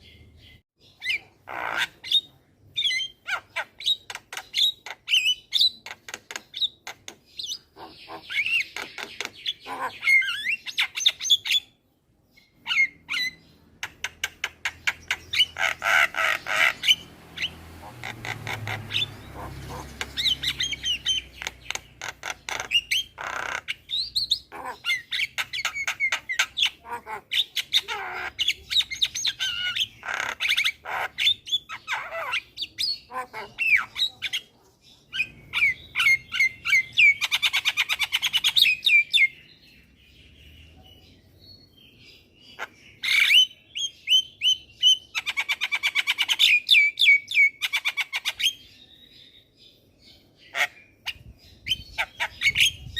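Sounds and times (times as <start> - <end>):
myna chattering song: 33.1 - 34.5.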